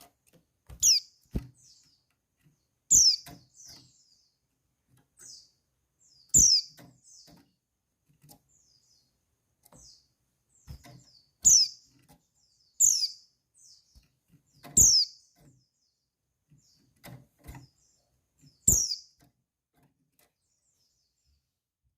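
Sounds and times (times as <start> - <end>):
high falling bird chirps: 0.8 - 4.4, 5.2 - 7.4, 9.8 - 16.9, 17.6 - 19.2.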